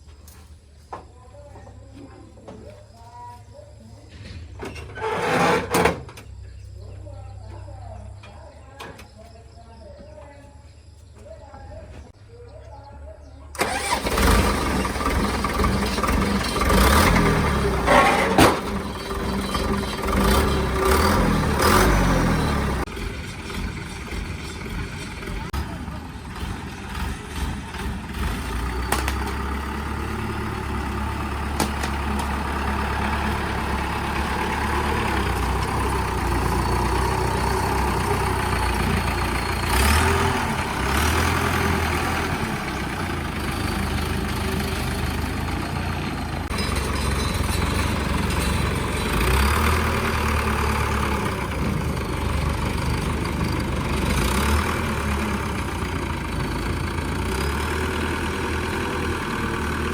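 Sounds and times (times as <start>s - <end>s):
truck engine idling and revving: 13.5s - 59.9s.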